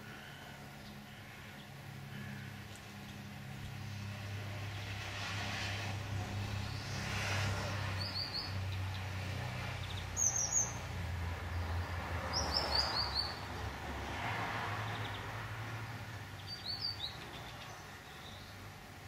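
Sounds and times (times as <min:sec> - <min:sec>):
bird chirping: 0:09.8 - 0:10.8, 0:16.4 - 0:18.6.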